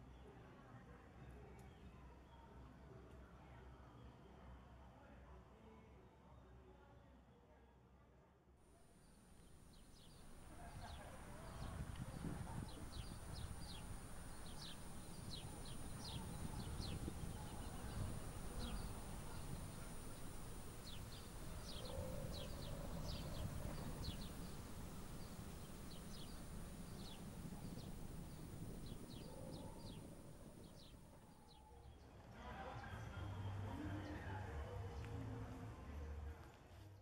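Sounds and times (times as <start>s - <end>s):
small birds chirping: 9.0s - 32.0s
steady low rumble: 9.4s - 31.4s.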